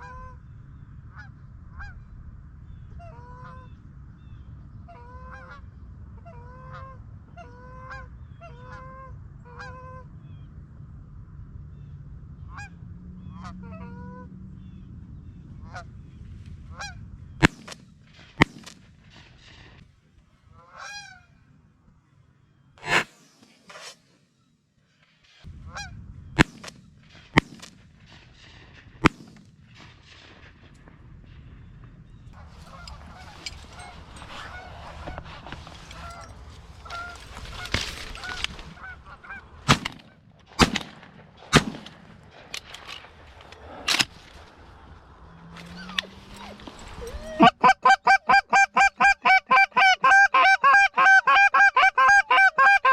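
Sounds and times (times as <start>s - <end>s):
geese honking: 4.9s - 10.0s, 12.5s - 14.3s, 20.6s - 21.4s, 32.1s - 52.9s
loud sharp cracks: 17.4s - 19.6s, 26.4s - 31.0s, 36.9s - 46.1s.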